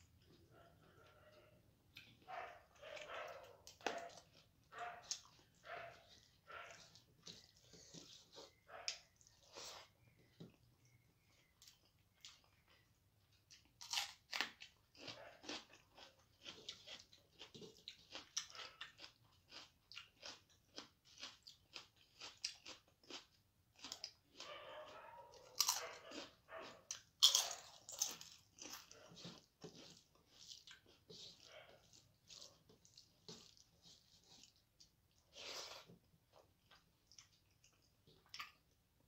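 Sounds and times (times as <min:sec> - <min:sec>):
person chewing and biting food: 0:13.5 - 0:24.5, 0:25.5 - 0:38.7.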